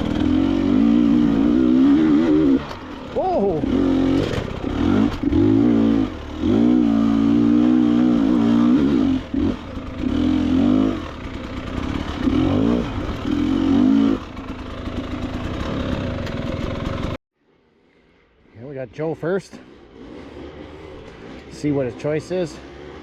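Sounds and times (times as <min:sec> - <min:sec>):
dirt bike engine revving: 0:00.0 - 0:17.2, 0:19.5 - 0:23.0.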